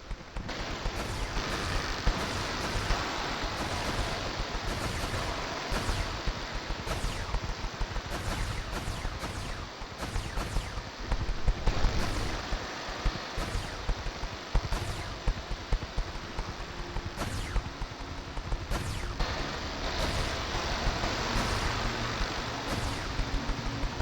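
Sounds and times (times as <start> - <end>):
crackling hiss with pops: 0.0 - 24.0.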